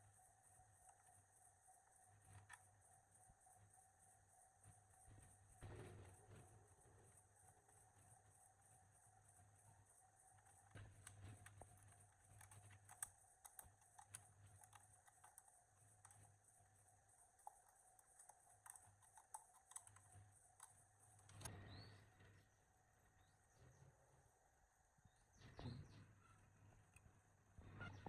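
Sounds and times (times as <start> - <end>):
light clicks and taps: 2.2 - 2.7, 10.3 - 21.6.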